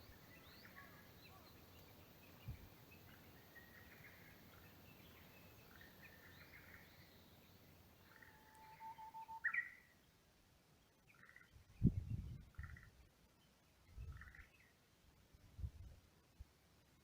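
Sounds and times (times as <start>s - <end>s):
bird chirps and whistles: 8.5s - 9.8s.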